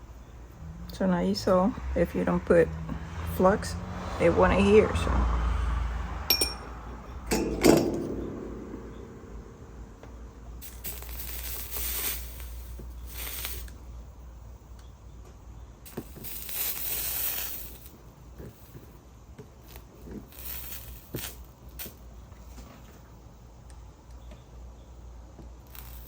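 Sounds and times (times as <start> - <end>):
steady low hum: 4.6 - 13.1.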